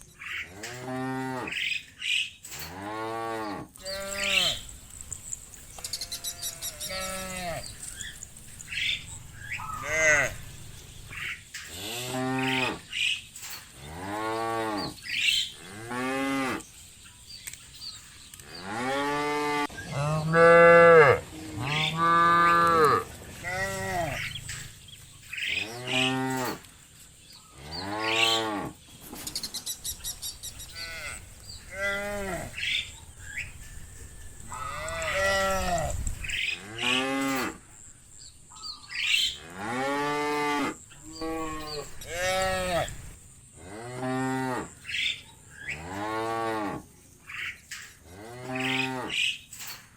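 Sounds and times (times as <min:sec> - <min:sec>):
cattle mooing: 0:02.7 - 0:04.7, 0:05.8 - 0:13.0, 0:18.6 - 0:24.8, 0:25.6 - 0:26.6, 0:30.7 - 0:33.0, 0:34.4 - 0:37.6, 0:39.4 - 0:44.8.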